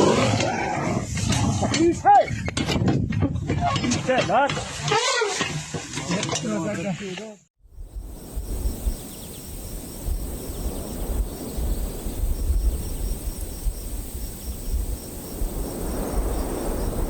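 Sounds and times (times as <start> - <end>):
wind buffeting microphone: 7.6 - 17.0
insects chirping: 7.7 - 17.0.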